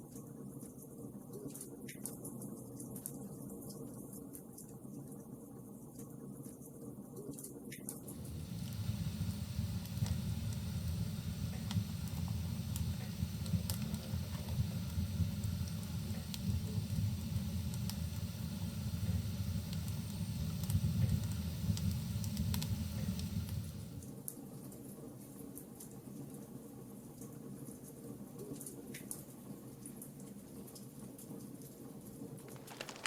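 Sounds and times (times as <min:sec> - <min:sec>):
logs crackling and popping: 0:08.1 - 0:24.0, 0:32.5 - 0:33.0
fire roaring: 0:08.1 - 0:24.1.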